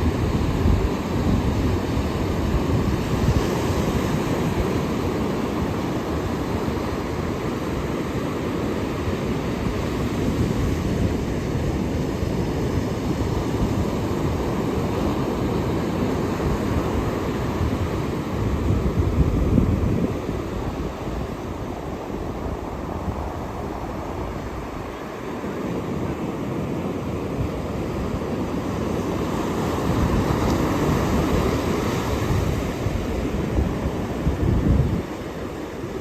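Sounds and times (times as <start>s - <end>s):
ocean surf washing ashore: 0.0s - 36.0s.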